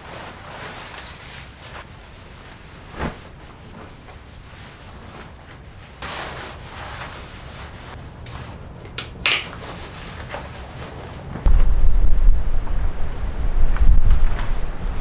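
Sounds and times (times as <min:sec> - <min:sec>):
low steady rumble: 0:10.5 - 0:15.0.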